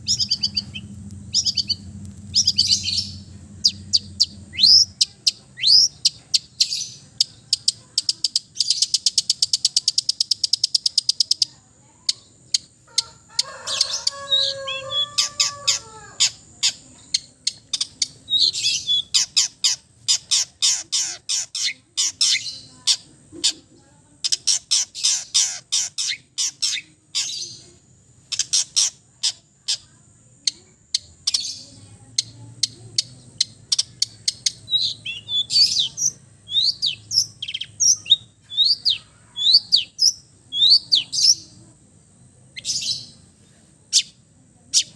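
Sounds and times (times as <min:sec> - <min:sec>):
shrike singing: 0:00.0 - 0:07.0, 0:13.0 - 0:22.7, 0:31.3 - 0:41.7.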